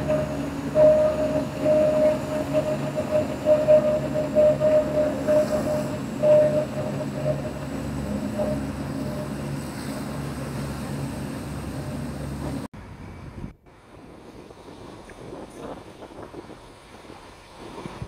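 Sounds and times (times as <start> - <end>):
crossing warning bell dinging: 0.0 - 10.6
diesel train running drone: 0.0 - 13.0.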